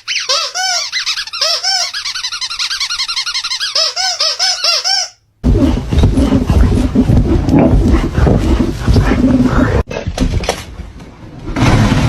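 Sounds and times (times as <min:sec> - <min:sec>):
rapid high-pitched squeaks: 0:00.0 - 0:05.2
loud rough noise: 0:05.4 - 0:09.9, 0:11.2 - 0:12.0.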